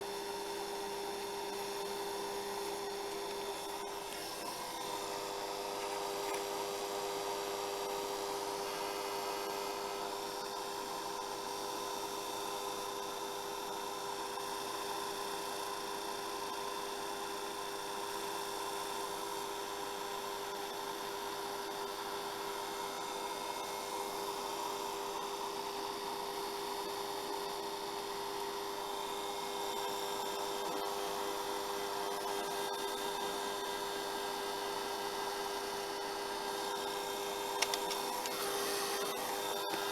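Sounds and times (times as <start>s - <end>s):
hair dryer running: 2.2s - 11.9s, 37.0s - 39.9s.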